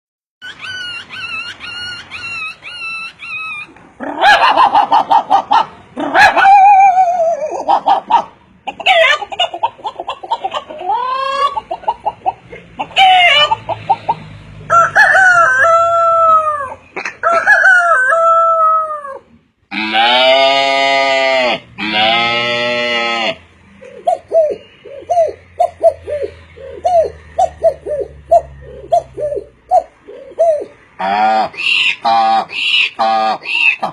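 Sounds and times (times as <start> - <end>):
bird-like chirps and squawks: 0.4 - 3.7, 23.8 - 33.9.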